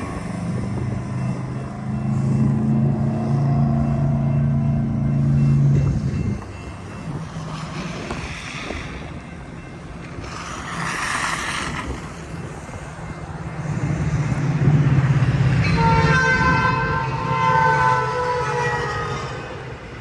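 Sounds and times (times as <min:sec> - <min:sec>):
diesel train rumble: 0:00.0 - 0:20.0
locomotive air horn: 0:15.6 - 0:19.6.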